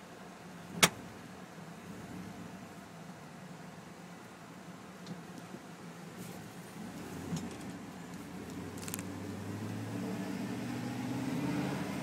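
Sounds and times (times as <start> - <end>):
truck engine accelerating: 6.4 - 12.0.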